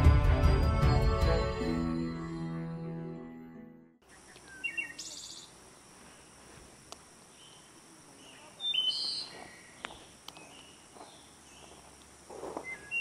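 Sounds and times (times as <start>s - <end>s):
faint outdoor hiss: 4.0s - 13.0s
small birds chirping: 4.0s - 13.0s.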